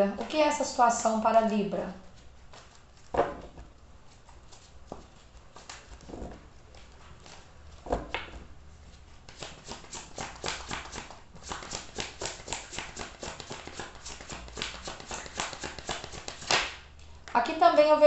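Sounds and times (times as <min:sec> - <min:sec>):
cards shuffled by hand: 0:02.1 - 0:08.4, 0:09.2 - 0:17.2.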